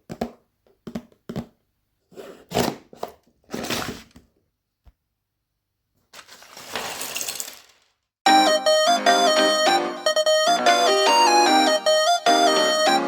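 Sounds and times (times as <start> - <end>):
packaging rustling or rattling: 6.1 - 7.9.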